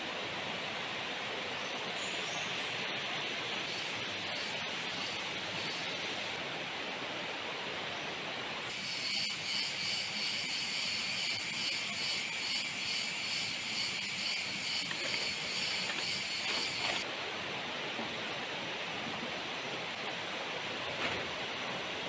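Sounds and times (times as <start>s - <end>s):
heavy rain on vegetation: 10.9s - 22.0s.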